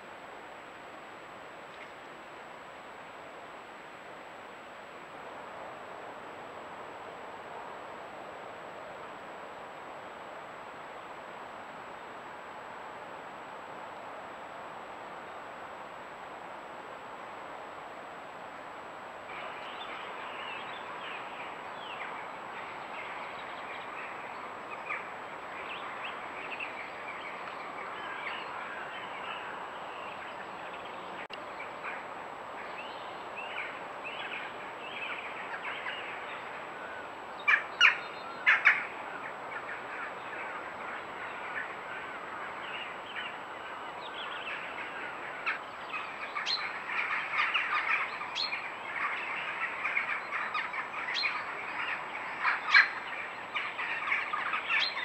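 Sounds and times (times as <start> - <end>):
small birds chirping and singing: 19.3 - 32.0, 32.6 - 55.0.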